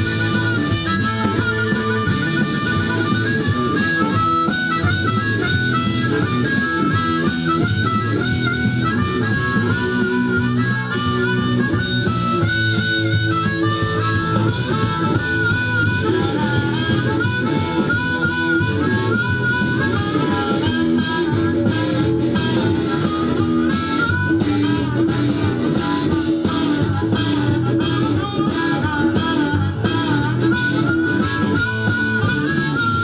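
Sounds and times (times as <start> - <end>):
guitar accompaniment: 0.0 - 33.0
harmonica solo: 0.0 - 33.0.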